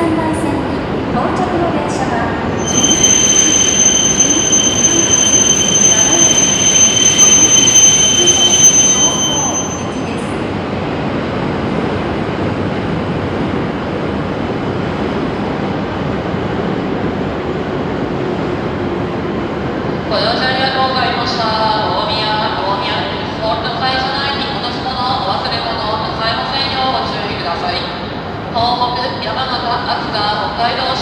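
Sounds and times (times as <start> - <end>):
train wheel squeal: 2.6 - 10.4.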